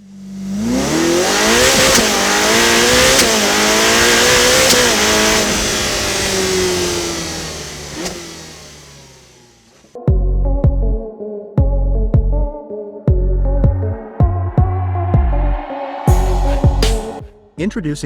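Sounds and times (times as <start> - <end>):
motorcycle engine accelerating: 0.0 - 10.0, 13.6 - 17.2.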